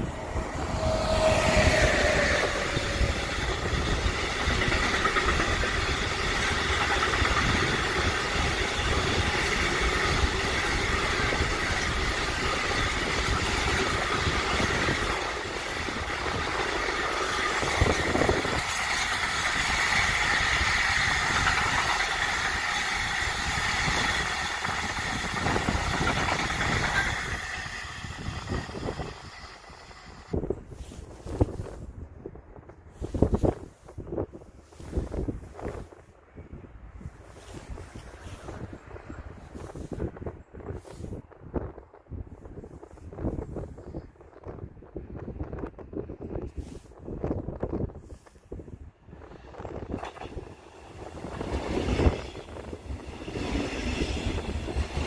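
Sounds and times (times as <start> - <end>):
electric locomotive passing: 0.0 - 30.4, 48.9 - 55.0
wagon wheels rumbling on rails: 0.0 - 30.4, 49.2 - 55.0.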